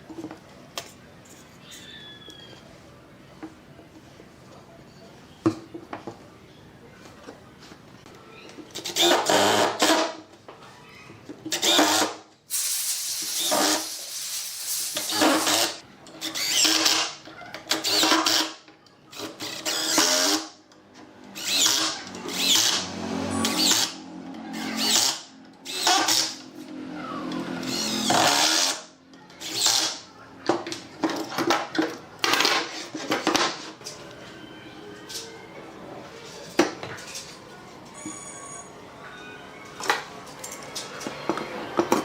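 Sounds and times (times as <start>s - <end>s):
power tool short bursts: 11.8s - 15.8s.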